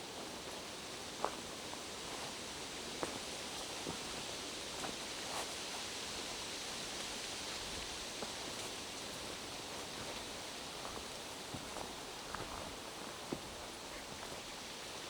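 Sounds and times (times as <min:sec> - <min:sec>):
rain falling through forest: 0:00.0 - 0:15.0.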